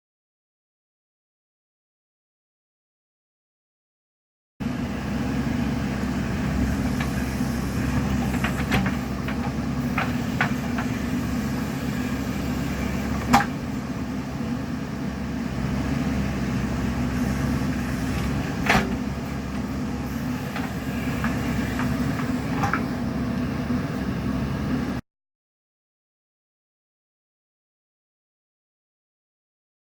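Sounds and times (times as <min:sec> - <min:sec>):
diesel engine running: 0:04.6 - 0:25.0.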